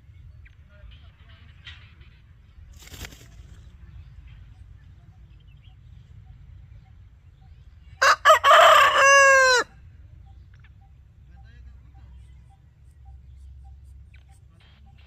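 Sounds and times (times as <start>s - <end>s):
rooster crowing: 8.0s - 9.8s.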